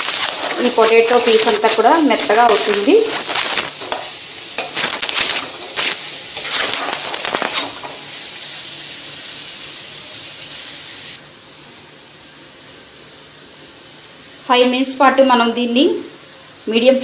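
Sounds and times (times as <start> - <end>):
spatula scraping a pan: 0.0 - 8.1
potato strips sizzling in a pan: 0.0 - 17.0.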